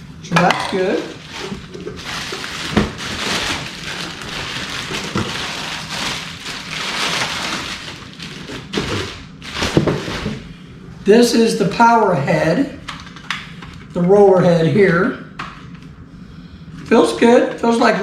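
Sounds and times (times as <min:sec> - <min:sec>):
packaging crinkling and rustling: 0:00.7 - 0:10.5.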